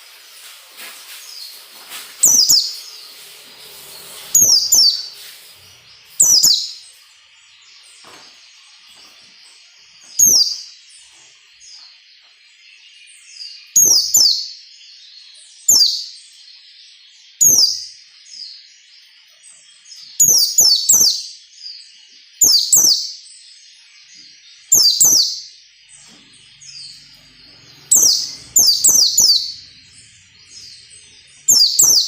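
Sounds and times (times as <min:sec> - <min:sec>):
bird high sweeping calls: 0:00.0 - 0:08.3, 0:10.0 - 0:11.3, 0:26.0 - 0:32.0
soft bird twittering: 0:00.0 - 0:14.6, 0:17.3 - 0:32.0.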